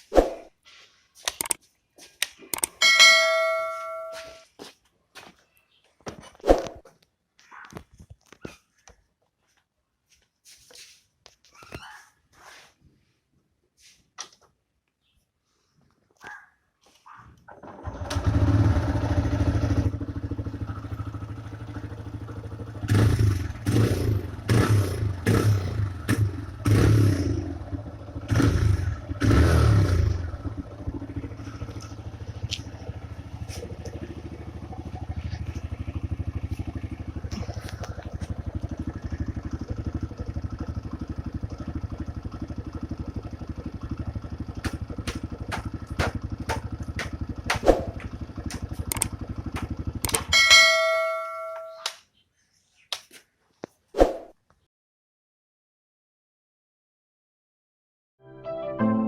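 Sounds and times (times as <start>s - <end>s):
motorcycle engine revving and idling: 17.5s - 51.8s.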